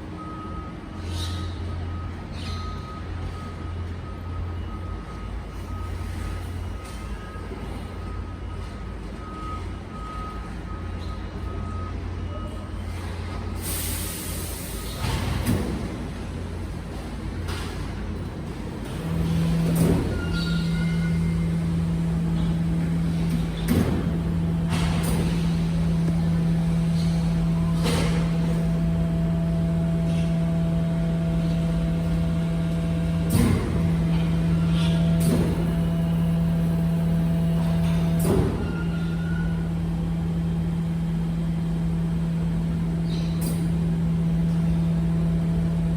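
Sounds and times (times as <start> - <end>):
garbage truck engine rumble: 0.0 - 45.9
hiss of released air: 13.6 - 15.1.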